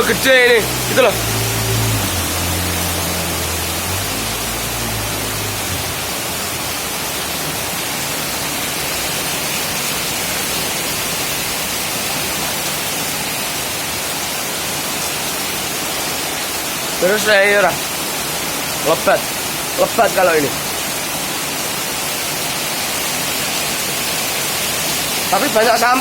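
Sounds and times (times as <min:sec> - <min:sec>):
low engine hum: 0:00.0 - 0:07.1
floodwater rushing: 0:00.0 - 0:26.0
heavy rain pouring: 0:00.0 - 0:26.0.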